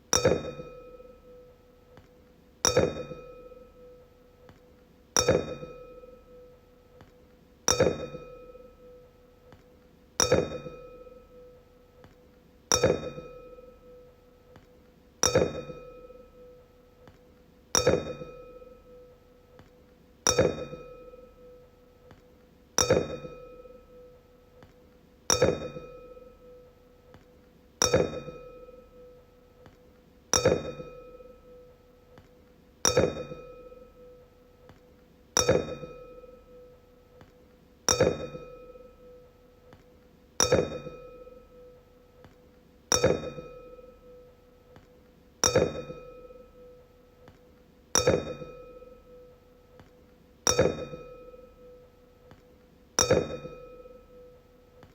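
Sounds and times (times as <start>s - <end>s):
wine glass tapped ringing: 0.2s - 1.4s, 2.6s - 3.7s, 5.2s - 6.5s, 7.7s - 9.0s, 10.2s - 11.5s, 12.7s - 14.0s, 15.2s - 16.6s, 17.8s - 19.1s, 20.3s - 21.6s, 22.8s - 24.1s, 25.3s - 26.6s, 27.8s - 29.2s, 30.4s - 31.7s, 32.9s - 34.2s, 35.4s - 36.7s, 37.9s - 39.2s, 40.4s - 41.8s, 42.9s - 44.3s, 45.4s - 46.8s, 48.0s - 49.3s, 50.5s - 52.4s, 53.0s - 54.4s.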